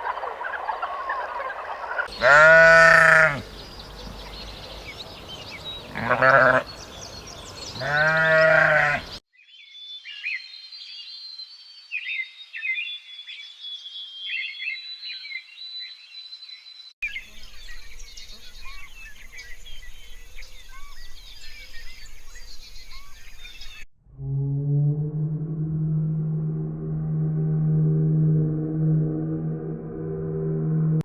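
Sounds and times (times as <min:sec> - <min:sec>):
high chirping calls: 0:00.0 - 0:09.2
sheep or goat bleating: 0:02.1 - 0:04.2, 0:05.8 - 0:06.8, 0:07.7 - 0:09.2.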